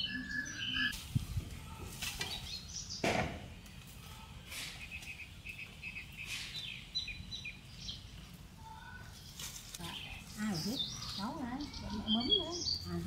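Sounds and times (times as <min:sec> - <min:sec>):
small birds chirping: 0:00.0 - 0:13.0
sharp knocks: 0:03.0 - 0:03.5.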